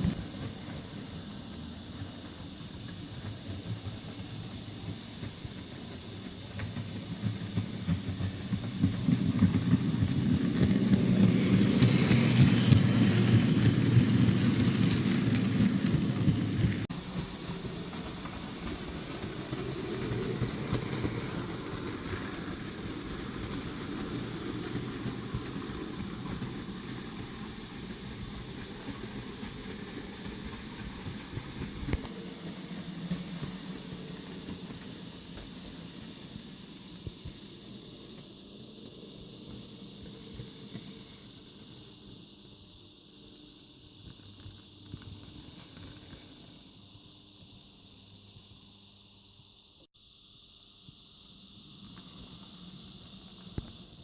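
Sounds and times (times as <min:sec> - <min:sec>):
model train rumbling on track: 0:00.0 - 0:42.6.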